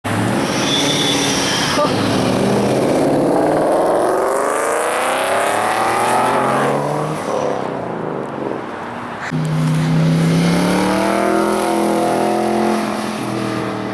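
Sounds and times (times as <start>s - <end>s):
car engine accelerating: 9.3s - 13.9s.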